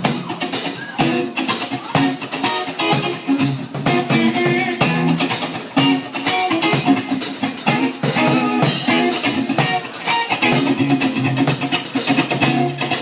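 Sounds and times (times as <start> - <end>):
bass guitar: 0.0 - 13.0
drum kit steady beat: 0.0 - 13.0
funk guitar: 0.0 - 13.0.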